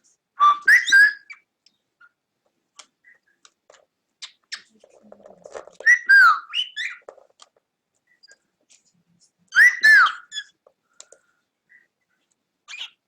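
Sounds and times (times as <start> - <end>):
cockatiel whistling: 0.4 - 1.4, 5.8 - 7.0, 9.6 - 10.5.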